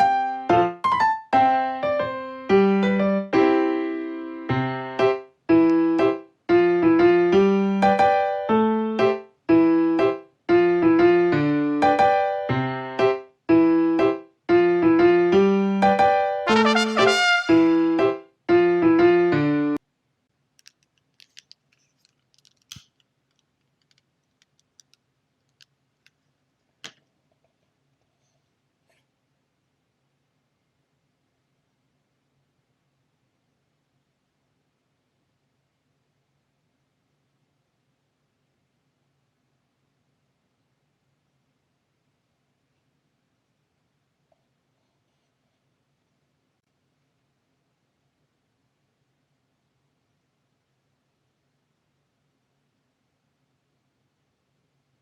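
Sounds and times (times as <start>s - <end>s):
piano chords: 0.0s - 19.8s
candle crackling and popping: 20.6s - 26.2s.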